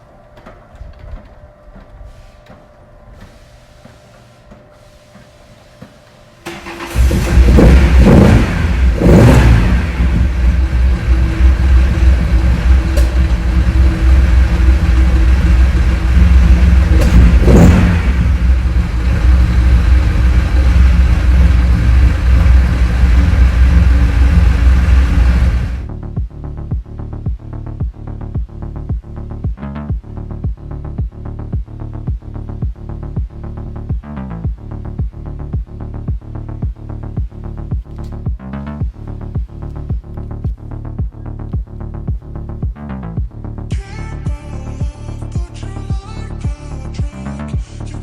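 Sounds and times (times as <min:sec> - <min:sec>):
car engine idling: 0:06.4 - 0:26.0
car engine starting and revving: 0:06.4 - 0:26.0.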